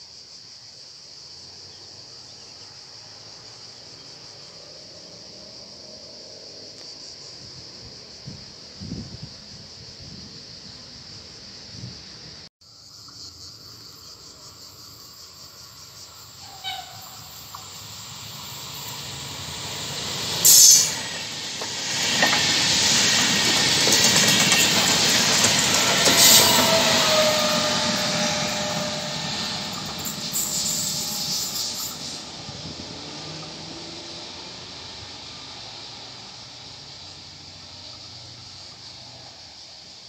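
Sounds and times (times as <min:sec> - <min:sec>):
train passing at speed: 0:00.9 - 0:40.0
falling whine: 0:24.4 - 0:36.7.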